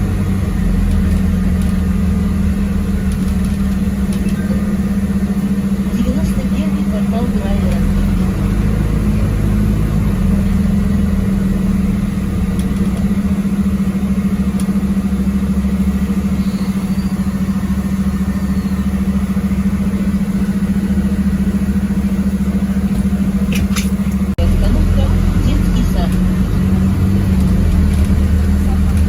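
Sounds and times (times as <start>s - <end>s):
bus engine droning: 0.0s - 29.0s.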